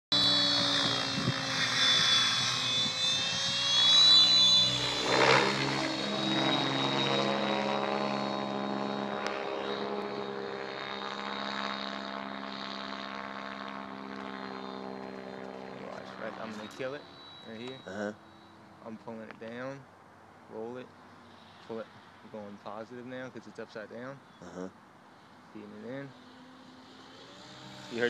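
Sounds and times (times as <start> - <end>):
rotor whoosh: 0.1 - 18.5, 25.6 - 28.0
model helicopter motor whine: 0.1 - 18.8, 25.1 - 28.0.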